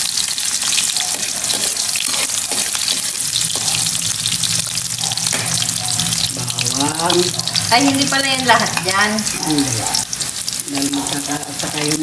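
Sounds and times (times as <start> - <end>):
onion sizzling in hot oil: 0.0 - 12.0
metal spoon knocking on pan: 1.0 - 3.8, 5.0 - 5.7.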